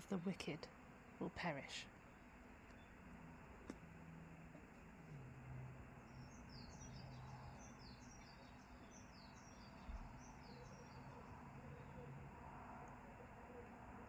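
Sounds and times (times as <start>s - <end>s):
low hum: 0.0s - 14.0s
small bird chirping: 6.0s - 12.2s.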